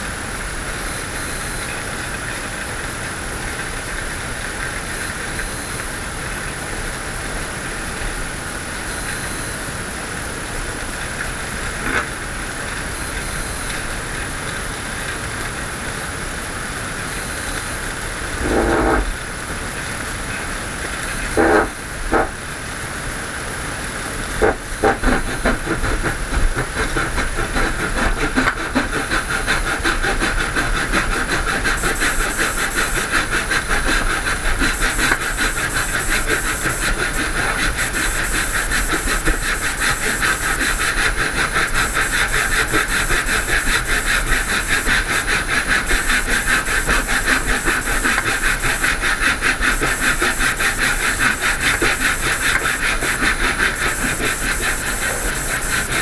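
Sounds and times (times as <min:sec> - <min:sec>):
woodworking power tool running: 0:18.2 - 0:19.4, 0:21.2 - 0:22.4, 0:24.3 - 0:56.0.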